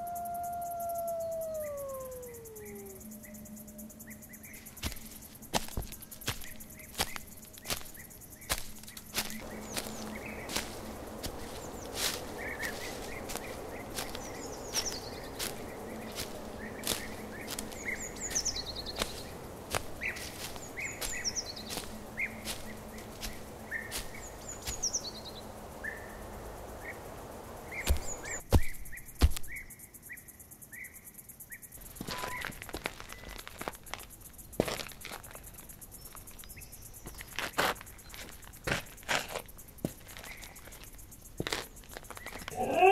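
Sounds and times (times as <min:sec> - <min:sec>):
birds chirping: 0:00.0 - 0:29.7, 0:40.1 - 0:42.9
steady hiss: 0:02.9 - 0:42.5.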